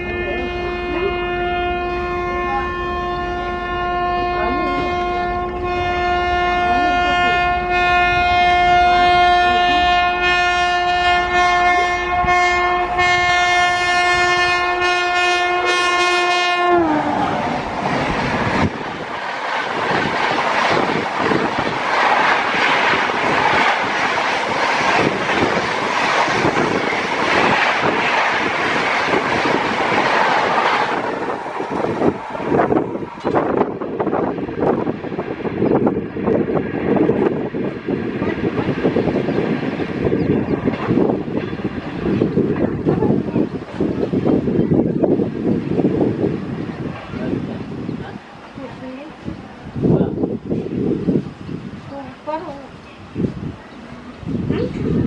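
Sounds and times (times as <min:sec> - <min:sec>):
locomotive horn blast: 0:00.0 - 0:17.7.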